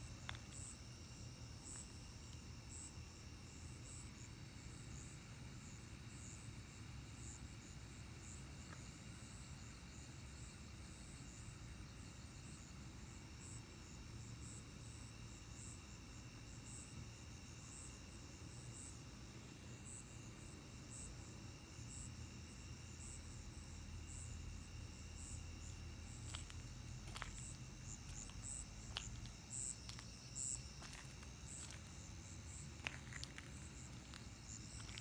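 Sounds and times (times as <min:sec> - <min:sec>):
insects trilling: 0:12.6 - 0:35.0
higher pulsing insect call: 0:19.7 - 0:35.0.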